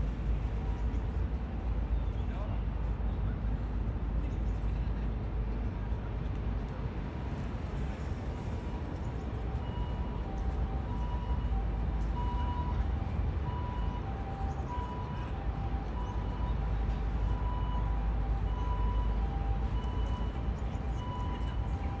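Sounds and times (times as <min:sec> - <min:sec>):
low urban background rumble: 0:00.0 - 0:22.0.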